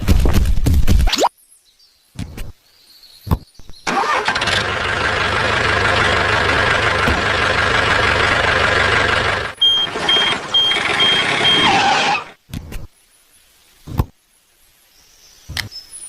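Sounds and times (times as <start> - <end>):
vehicle engine running loudly: 3.9 - 12.3
reversing alarm beeping: 9.6 - 12.2.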